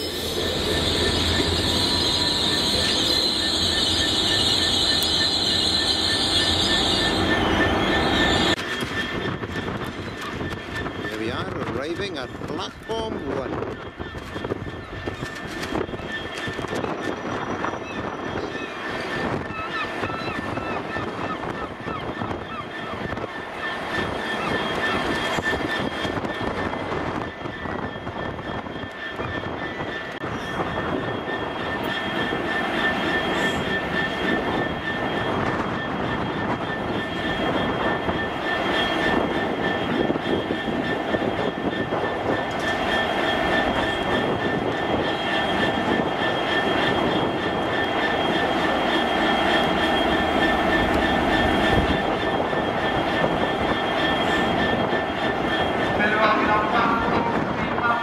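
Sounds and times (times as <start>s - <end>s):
steady high whine: 0.0s - 19.5s, 21.7s - 58.0s
train approaching: 0.0s - 58.0s.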